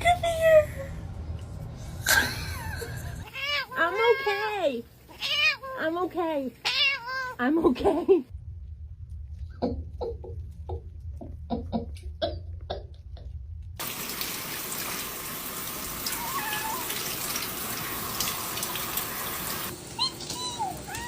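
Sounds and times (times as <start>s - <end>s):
cat meowing: 3.3s - 4.5s, 5.1s - 5.8s, 6.6s - 7.4s, 16.1s - 17.0s
tap running into a bath: 13.8s - 21.0s.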